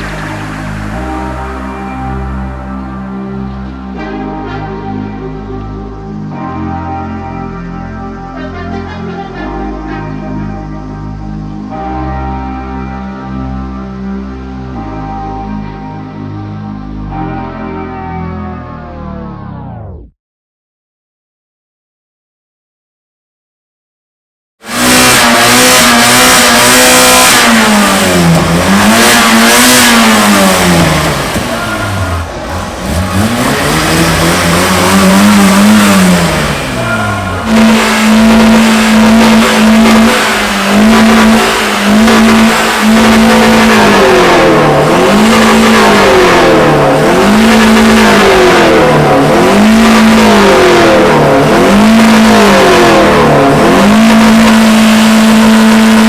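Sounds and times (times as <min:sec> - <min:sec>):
car engine revving: 0:00.0 - 0:05.0, 0:24.6 - 0:56.0.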